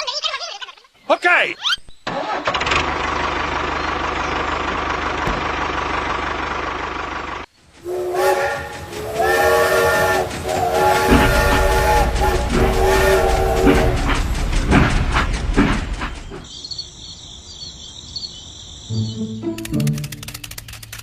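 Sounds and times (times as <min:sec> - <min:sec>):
loud horn-like chord blasts: 0:07.9 - 0:14.1.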